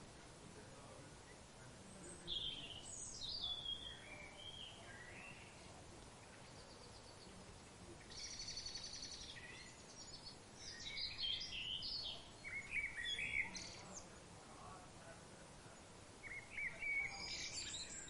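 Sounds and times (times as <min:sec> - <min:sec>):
steady background hiss: 0:00.0 - 0:18.0
birds singing: 0:00.8 - 0:14.8, 0:15.6 - 0:18.0.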